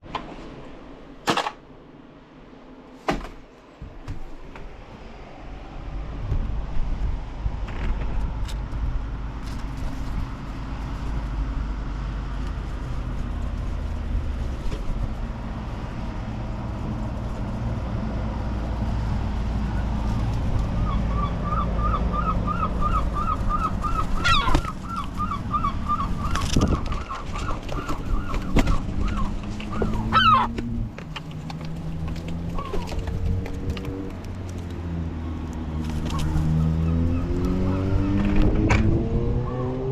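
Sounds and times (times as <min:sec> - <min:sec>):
seagulls calling: 0:19.6 - 0:34.1, 0:36.0 - 0:38.2.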